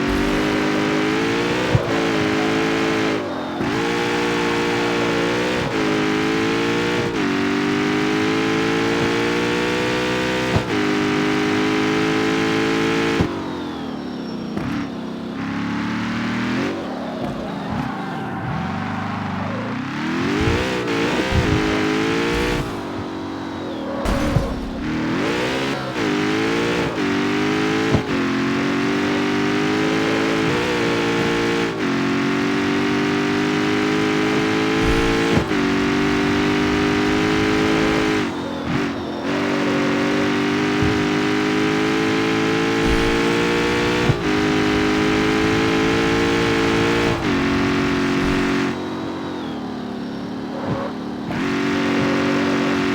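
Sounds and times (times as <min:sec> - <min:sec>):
car engine accelerating: 0:00.0 - 0:52.9
exhaust cracks on shifts: 0:34.2 - 0:52.9.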